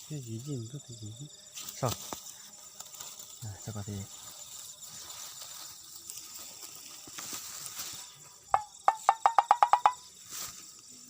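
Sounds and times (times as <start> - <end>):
crickets chirring: 0.0 - 11.0
short pitched knocking calls: 8.5 - 10.1.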